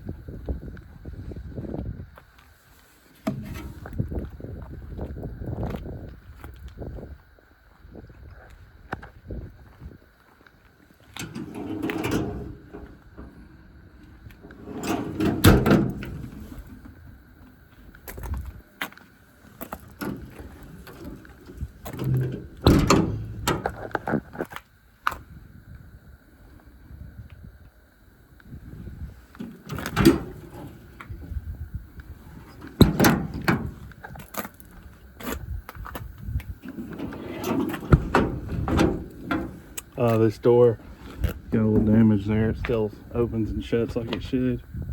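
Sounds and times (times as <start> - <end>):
metal compartment door rattling: 3.2 - 4.0, 11.1 - 13.7, 14.3 - 17.1, 19.6 - 24.2, 29.4 - 31.4, 32.1 - 34.5, 36.6 - 40.0
metal door shutting with a bang: 11.2 - 13.4, 14.4 - 16.8, 19.9 - 24.0, 29.7 - 30.8, 32.4 - 33.9, 36.6 - 39.8.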